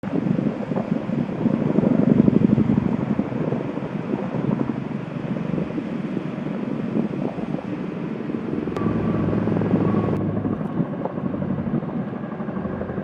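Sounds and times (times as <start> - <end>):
wind noise: 0.0 - 13.0
turbine whine: 0.2 - 13.0
helicopter rotor blades thumping: 8.4 - 13.0.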